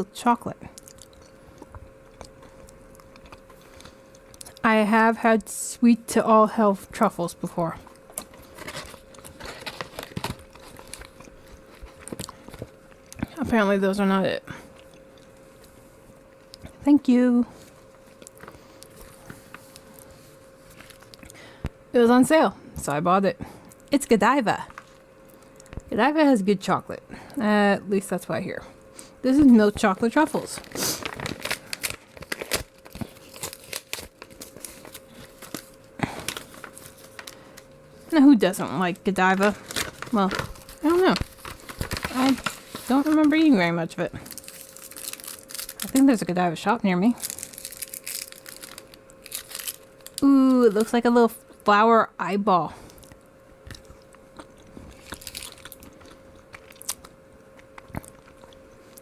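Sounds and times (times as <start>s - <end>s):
faint steady hum: 0.0s - 59.0s
chocolate crunching while chewing: 0.7s - 4.7s, 7.8s - 13.4s, 14.6s - 16.8s, 17.7s - 21.7s, 29.8s - 37.8s, 44.0s - 46.2s, 47.1s - 51.7s, 52.9s - 59.0s
candy wrapper crinkling and tearing: 8.0s - 13.2s, 30.0s - 37.4s, 39.0s - 43.5s, 44.2s - 46.4s, 47.1s - 51.0s, 52.9s - 59.0s.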